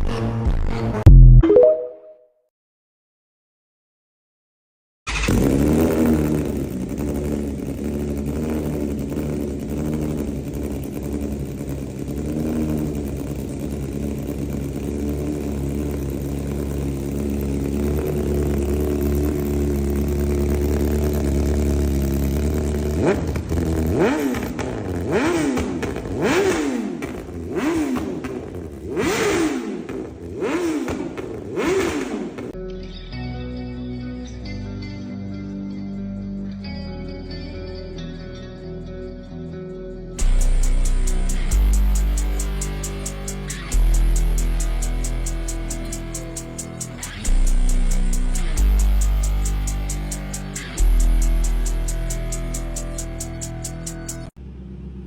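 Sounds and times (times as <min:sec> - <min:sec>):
music: 0:00.0 - 0:02.2, 0:32.6 - 0:54.3
motorcycle engine revving: 0:05.1 - 0:32.6, 0:40.2 - 0:55.0.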